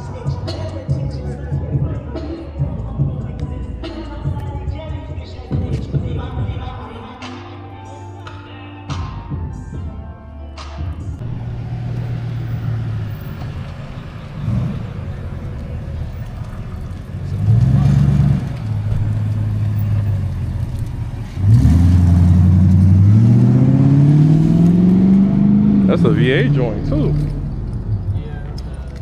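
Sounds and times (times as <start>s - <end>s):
car engine accelerating: 11.2s - 29.0s.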